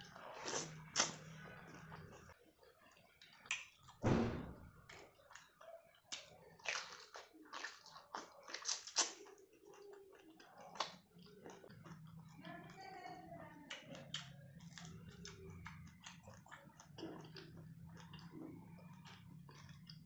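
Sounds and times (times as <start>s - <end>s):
wet chewing and mouth smacking: 0.0s - 4.0s, 4.8s - 12.8s, 13.6s - 20.0s
biting into cabbage leaf: 6.6s - 9.4s.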